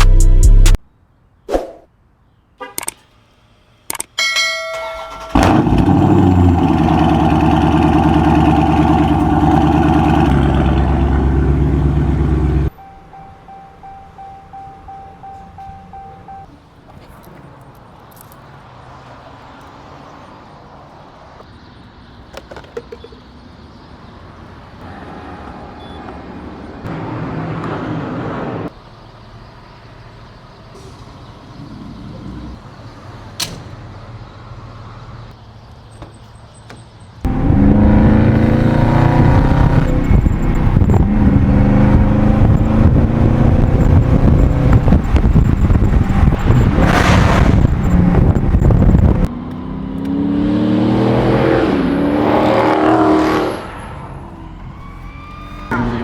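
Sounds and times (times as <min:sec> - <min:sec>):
street noise: 0:00.0 - 0:56.0
car engine: 0:04.7 - 0:21.7, 0:37.2 - 0:56.0
loud engine revving: 0:05.2 - 0:12.7, 0:37.3 - 0:54.0.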